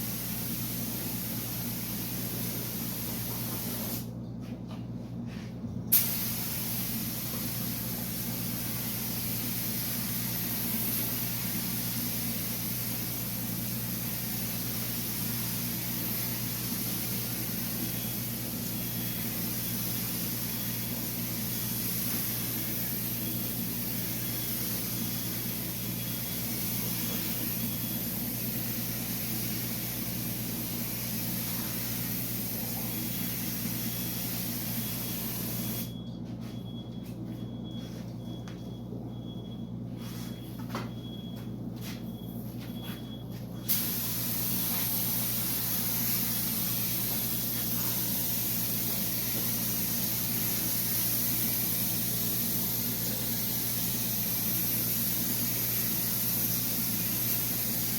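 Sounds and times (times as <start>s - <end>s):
spray gun hissing: 0.0s - 4.1s, 5.9s - 35.9s, 43.7s - 57.9s
low mechanical hum: 0.0s - 57.9s
spray gun pop: 5.9s - 7.5s.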